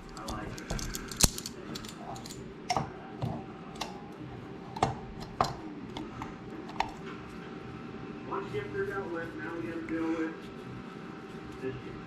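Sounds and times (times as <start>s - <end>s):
small parts clicking and tapping: 0.0s - 2.4s.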